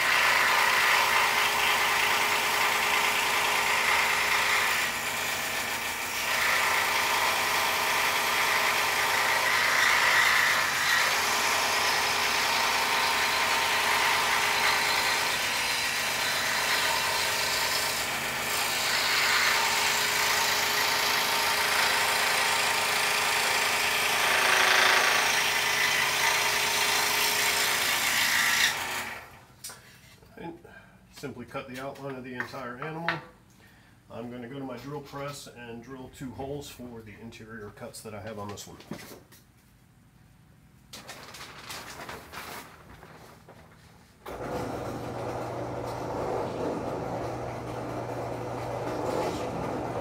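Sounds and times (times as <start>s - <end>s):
scroll saw cutting wood: 0.0s - 29.4s, 44.3s - 50.0s.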